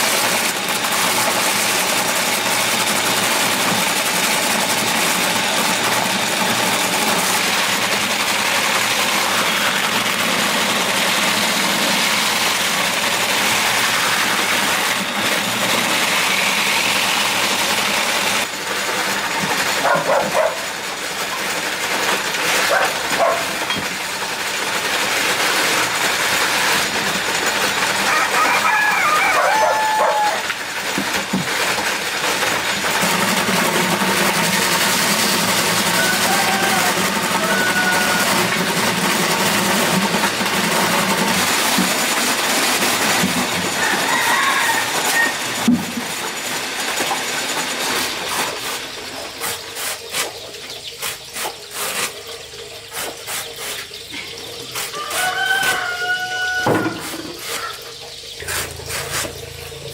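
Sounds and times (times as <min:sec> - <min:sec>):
chickens calling: 0:27.7 - 0:30.5, 0:35.8 - 0:38.6, 0:43.0 - 0:45.6, 0:53.4 - 0:59.9.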